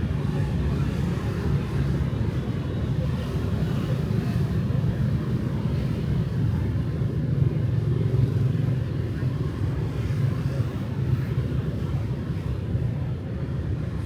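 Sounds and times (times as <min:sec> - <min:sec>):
city street traffic rumble: 0:00.0 - 0:14.0.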